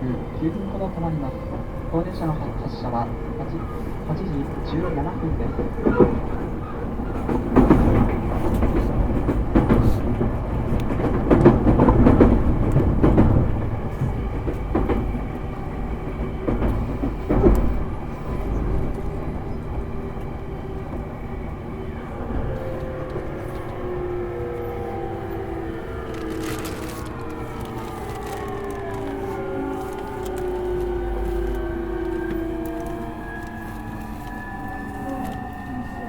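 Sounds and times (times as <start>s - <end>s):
train interior running noise: 0.0s - 36.0s
traction inverter whine: 17.4s - 36.0s
wheels clattering over rail joints: 22.1s - 35.5s.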